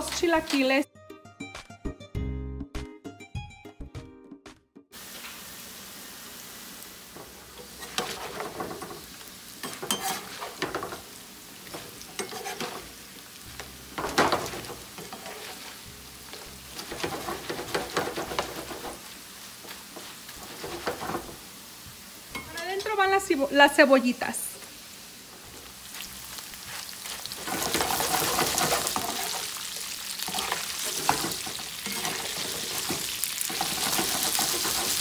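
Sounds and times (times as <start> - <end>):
food sizzling in hot oil: 5.0 - 35.0
spoon scraping and stirring chips: 9.6 - 10.9, 11.7 - 13.0, 14.0 - 19.0, 26.0 - 35.0.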